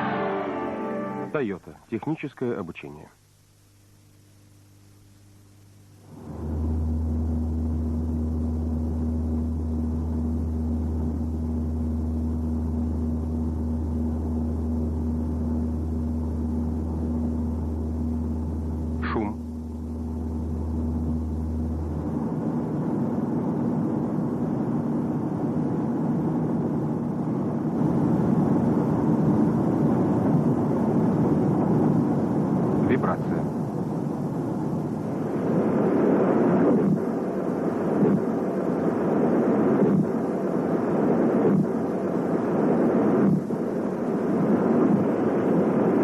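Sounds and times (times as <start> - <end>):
low vehicle drone: 0.0 - 1.4, 6.0 - 46.0
constant humming tone: 0.0 - 46.0
car road and engine rumble: 6.0 - 25.1.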